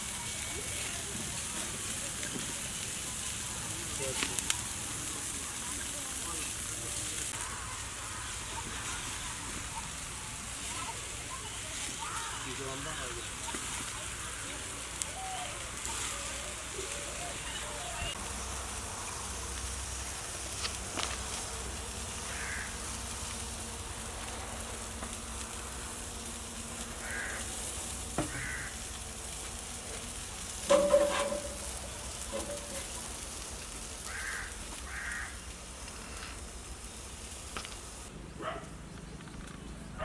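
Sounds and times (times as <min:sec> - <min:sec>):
meat sizzling over a fire: 0:00.0 - 0:39.9
loud metal clank with ringing: 0:30.7 - 0:31.6.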